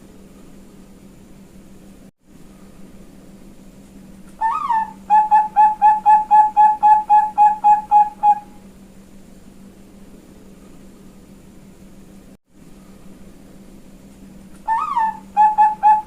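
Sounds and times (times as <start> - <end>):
dove cooing: 4.4 - 8.6, 14.6 - 16.0.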